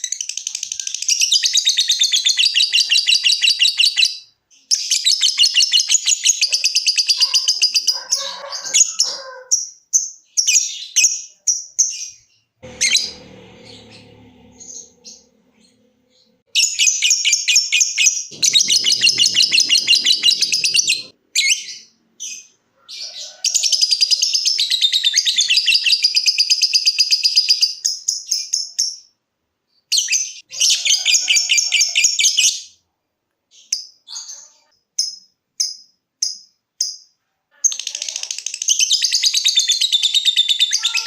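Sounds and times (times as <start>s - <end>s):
lovebird chattering trills: 16.6s - 21.8s.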